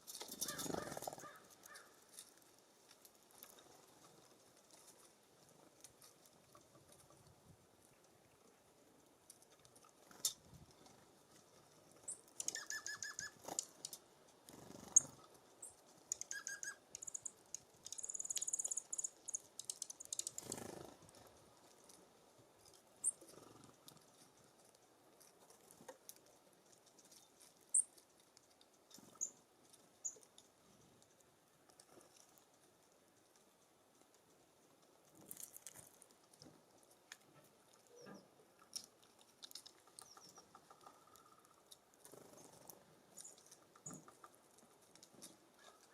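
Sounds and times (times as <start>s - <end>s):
songbirds chirping: 11.0s - 21.2s, 28.7s - 30.6s, 37.4s - 44.5s.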